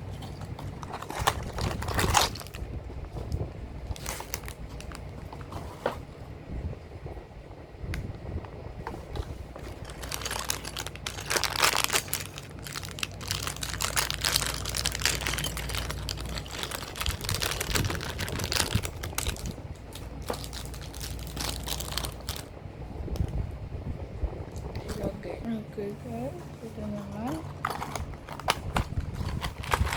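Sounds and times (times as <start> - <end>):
crinkling: 0.0 - 6.4, 7.9 - 23.4, 26.0 - 29.9
plastic pieces clicking and rattling: 9.8 - 22.5.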